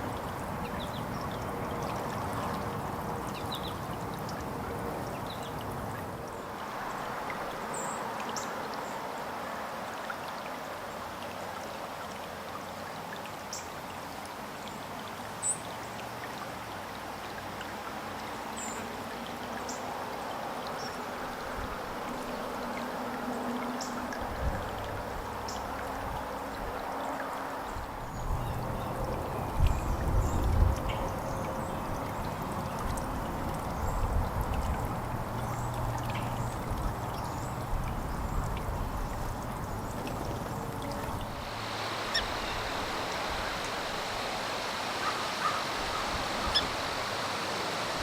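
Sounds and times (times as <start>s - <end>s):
trickle of running water: 0.0s - 48.0s
small birds chirping: 35.4s - 47.7s.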